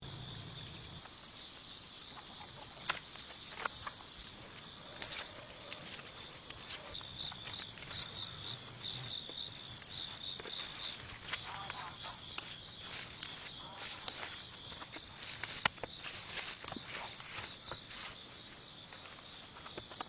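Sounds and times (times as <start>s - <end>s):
insect pulsed chirp: 0.0s - 20.0s
insects buzzing: 0.0s - 20.0s
clicks and rustles: 2.4s - 18.2s.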